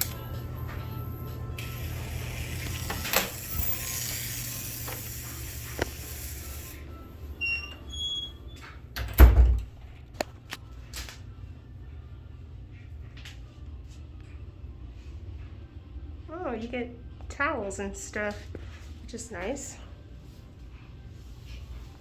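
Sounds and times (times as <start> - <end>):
steady low hum: 0.0 - 22.0
hiss: 1.6 - 6.8.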